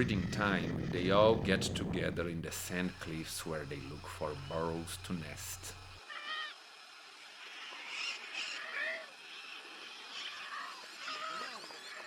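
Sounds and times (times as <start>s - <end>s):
macaws calling: 0.0s - 6.6s, 7.6s - 12.0s.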